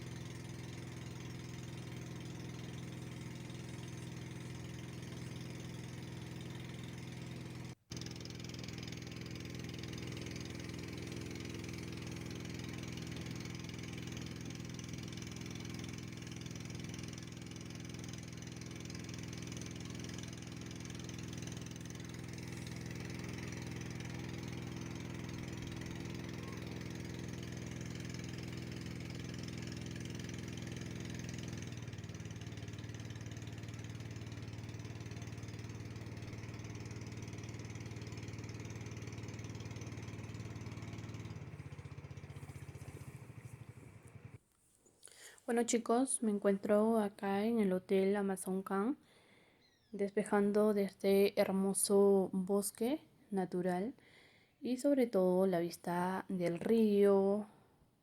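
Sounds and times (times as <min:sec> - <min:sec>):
boat motor running: 0:00.0 - 0:44.4.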